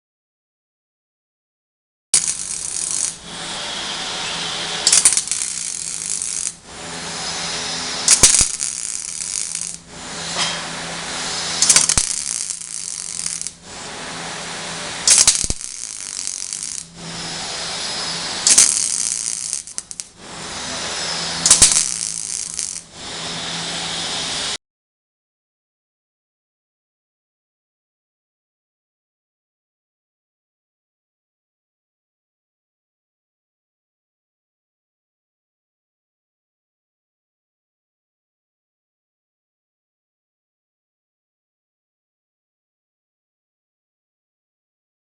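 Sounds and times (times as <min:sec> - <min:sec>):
arc welding crackling: 0:02.2 - 0:24.6
welding arc strike: 0:02.2 - 0:24.6.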